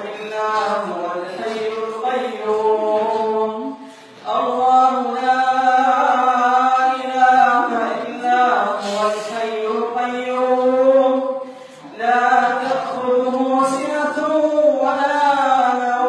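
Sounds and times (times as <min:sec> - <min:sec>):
man chanting recitation: 0:00.0 - 0:16.0.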